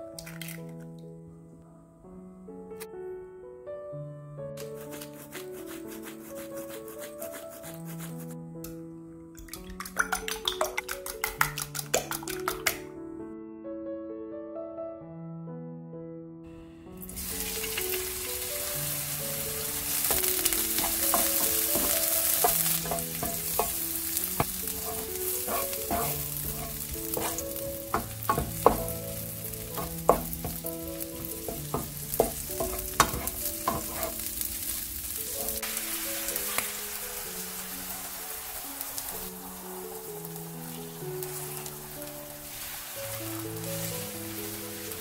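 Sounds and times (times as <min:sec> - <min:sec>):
egg poured into pan: 0:00.2 - 0:00.8, 0:09.4 - 0:12.8, 0:17.0 - 0:45.0
shrimp sizzling in oil: 0:04.6 - 0:08.3, 0:16.9 - 0:45.0
spatula scraping a pan: 0:04.6 - 0:08.4, 0:20.0 - 0:34.4.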